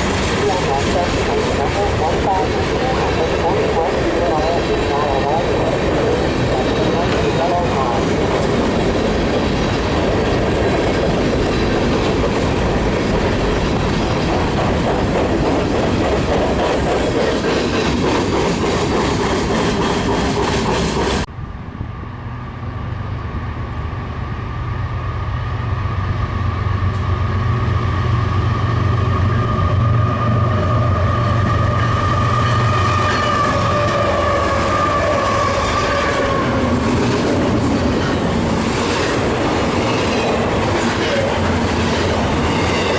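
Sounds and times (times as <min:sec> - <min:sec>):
freight train wheels clattering: 0:00.0 - 0:21.3
diesel locomotive drone: 0:00.0 - 0:42.9.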